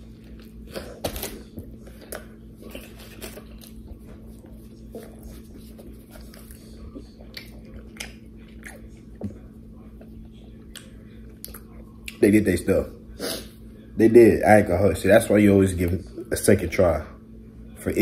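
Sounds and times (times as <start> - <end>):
steady low hum: 0.0 - 18.0
wet chewing mouth sounds: 1.8 - 12.2.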